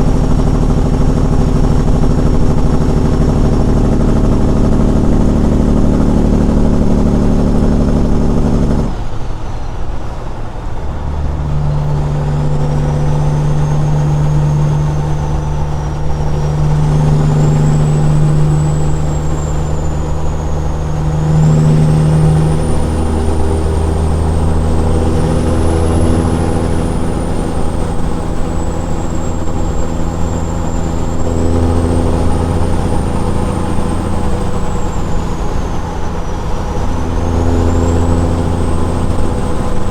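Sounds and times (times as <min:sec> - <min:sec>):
loud diesel truck engine: 0:00.0 - 0:39.9
high whistle wavering: 0:10.9 - 0:39.9.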